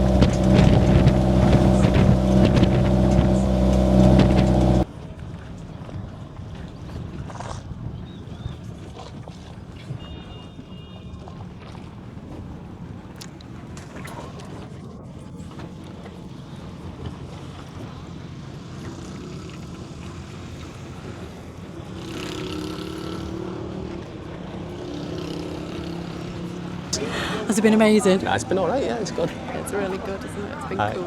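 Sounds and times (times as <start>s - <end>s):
vehicle engine running: 0.0s - 4.9s.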